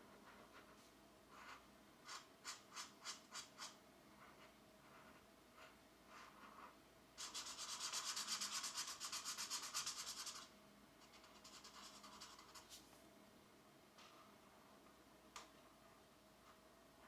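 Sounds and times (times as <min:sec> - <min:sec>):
pencil scratching on paper: 0:00.0 - 0:12.8.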